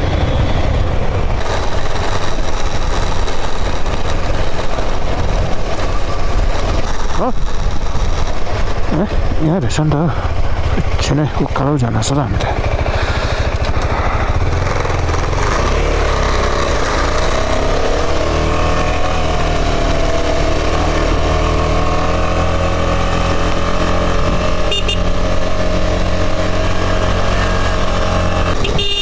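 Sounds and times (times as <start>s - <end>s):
motorcycle engine under load: 0.0s - 29.0s.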